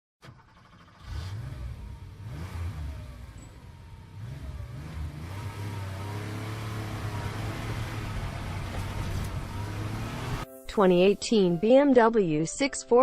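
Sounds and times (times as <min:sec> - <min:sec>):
car engine accelerating: 0:00.2 - 0:10.4.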